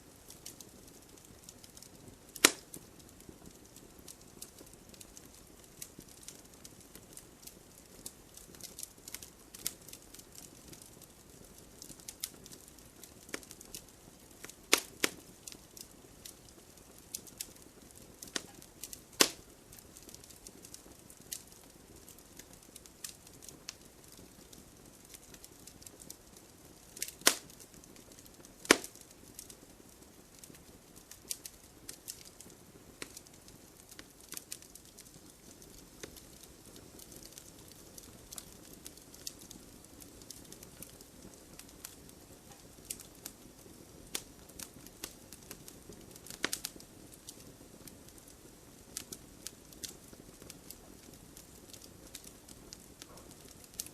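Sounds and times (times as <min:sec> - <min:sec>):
faint steady hiss: 0:00.0 - 0:53.9
wood fire crackling: 0:00.0 - 0:53.9.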